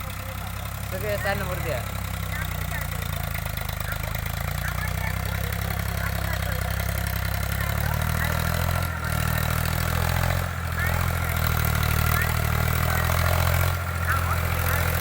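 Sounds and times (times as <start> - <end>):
tractor engine humming: 0.0 - 15.0.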